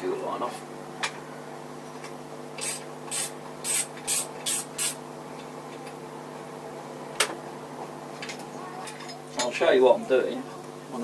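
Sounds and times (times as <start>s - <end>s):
short hissing spray bursts: 2.6s - 5.0s.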